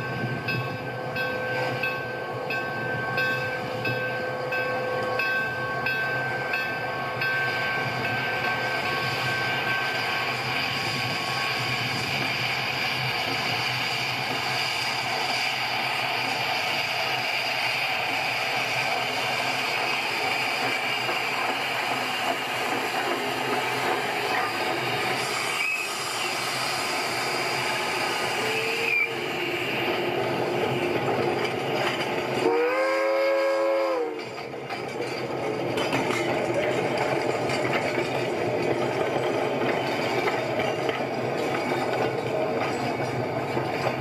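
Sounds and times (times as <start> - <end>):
train running on rails: 0.0 - 44.0
train horn: 32.4 - 34.3.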